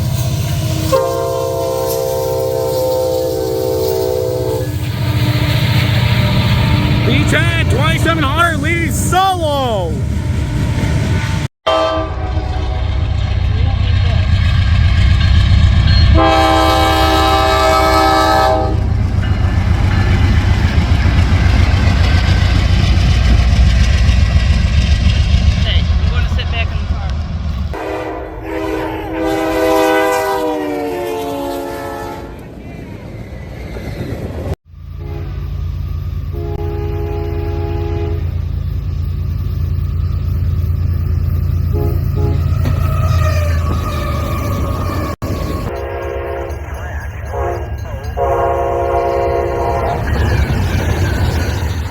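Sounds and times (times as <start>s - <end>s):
locomotive air horn: 0.0s - 12.9s, 16.0s - 18.9s, 27.7s - 32.4s, 35.0s - 35.4s, 36.3s - 38.4s, 41.7s - 50.1s
train rumbling on rails: 0.0s - 51.9s.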